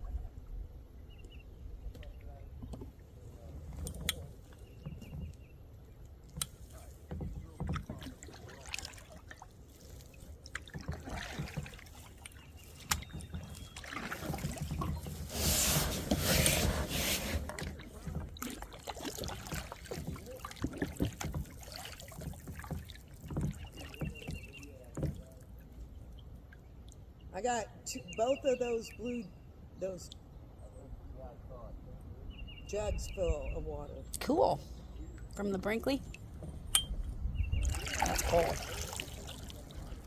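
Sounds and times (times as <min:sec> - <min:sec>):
boat knocks and clicks: 0:01.2 - 0:09.4, 0:10.2 - 0:26.4, 0:35.2 - 0:40.0
paddle strokes in water: 0:01.8 - 0:26.8, 0:37.3 - 0:40.0
water splashing: 0:02.0 - 0:27.1, 0:35.4 - 0:40.0.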